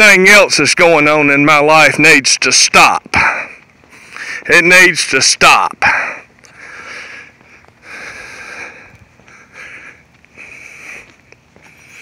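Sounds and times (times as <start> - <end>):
man breathing and sniffing: 3.2 - 4.5, 5.8 - 12.0.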